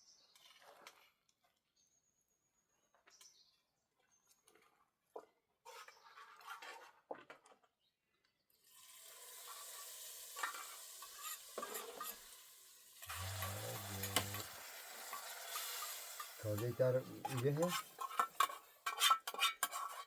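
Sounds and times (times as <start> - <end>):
food sizzling in a pan: 8.6 - 20.0
utensil stirring and clinking: 8.8 - 20.0.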